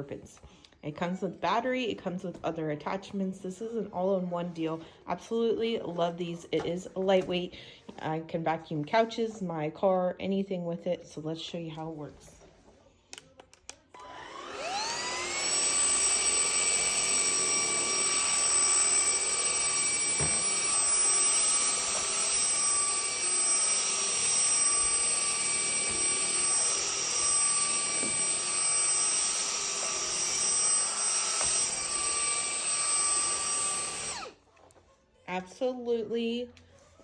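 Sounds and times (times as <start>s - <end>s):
cordless vacuum motor whine: 14.0s - 34.4s.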